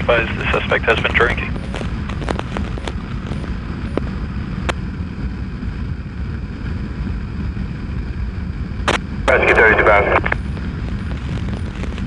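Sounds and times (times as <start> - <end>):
wind buffeting microphone: 1.5 - 9.3.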